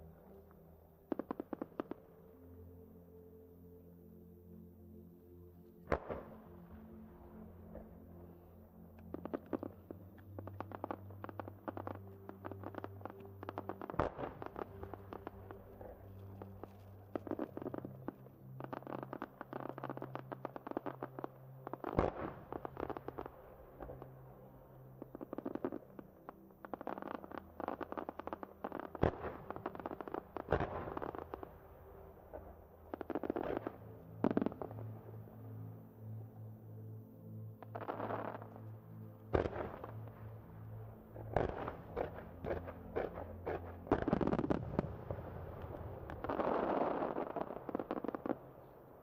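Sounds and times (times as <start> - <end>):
fireworks popping and crackling: 10.4 - 15.6, 26.6 - 31.5, 32.9 - 34.7, 41.3 - 48.5.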